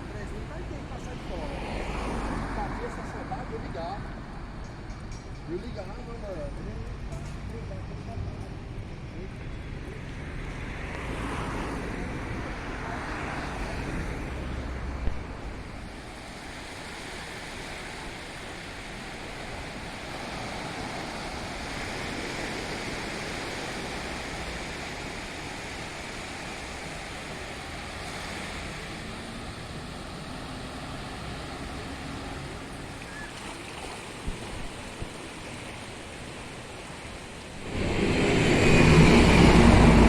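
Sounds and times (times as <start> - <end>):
moving vehicle rushing noise: 0.0 - 4.3, 37.4 - 40.0.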